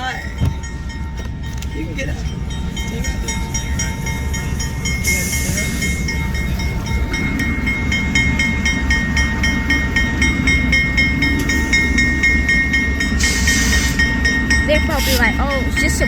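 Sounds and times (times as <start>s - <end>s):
high ringing tone: 0.0s - 16.0s
locomotive engine rumble: 0.0s - 16.0s
burst of hiss: 13.2s - 14.0s.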